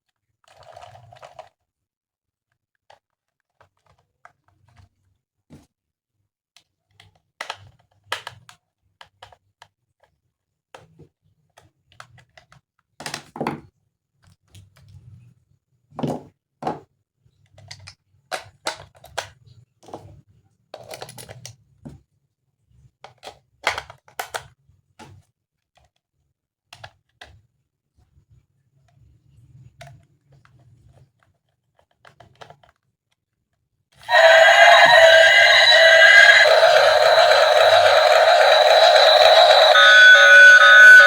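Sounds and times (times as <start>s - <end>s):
plastic toy parts clicking: 6.6s - 10.1s, 17.5s - 19.4s, 29.8s - 32.9s.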